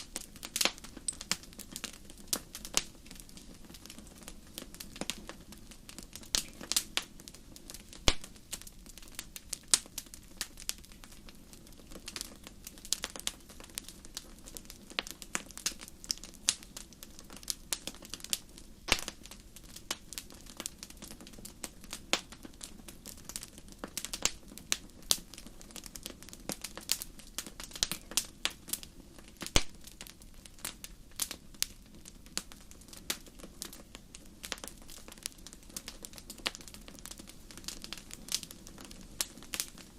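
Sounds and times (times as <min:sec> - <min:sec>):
sharp pops and snaps: 0:00.0 - 0:11.2, 0:17.3 - 0:21.4, 0:23.3 - 0:31.8
low rumble of flame: 0:00.0 - 0:39.9
wood fire crackling: 0:00.0 - 0:39.9.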